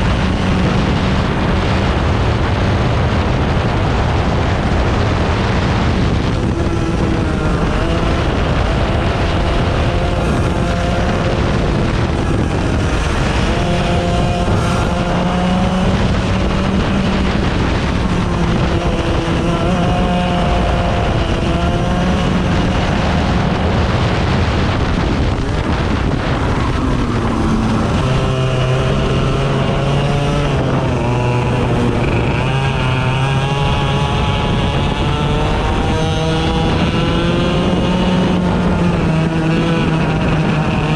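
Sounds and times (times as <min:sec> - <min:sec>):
lower-pitched engine running: 0:00.0 - 0:40.9
small racing engines revving: 0:00.0 - 0:40.9.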